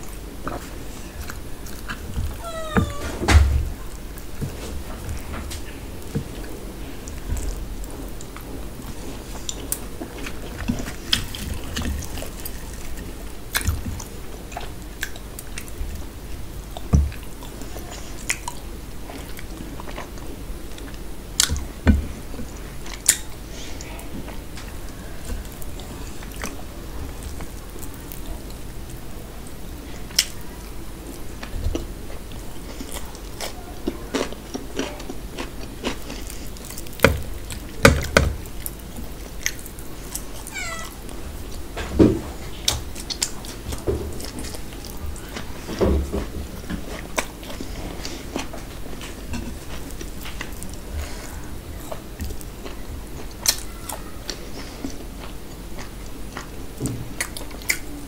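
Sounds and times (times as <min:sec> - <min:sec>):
person chewing and biting: 0:32.7 - 0:37.7.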